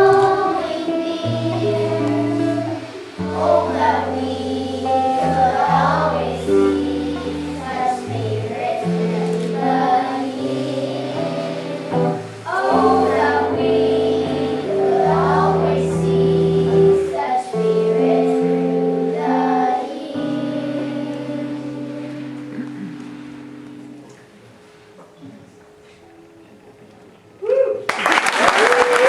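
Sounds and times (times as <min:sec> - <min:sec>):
children singing: 0:00.0 - 0:24.0
sustained instrument chords: 0:00.0 - 0:24.6.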